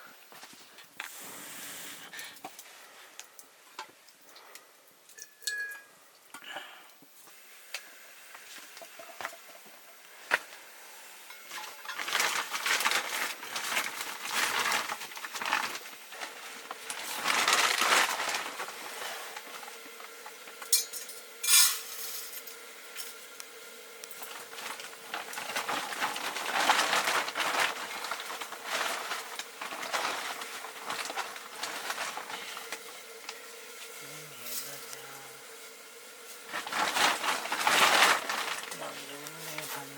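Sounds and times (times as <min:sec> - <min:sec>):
metal pots and utensils clinking: 0:05.1 - 0:06.0, 0:08.8 - 0:10.0, 0:11.2 - 0:12.9, 0:20.6 - 0:23.2.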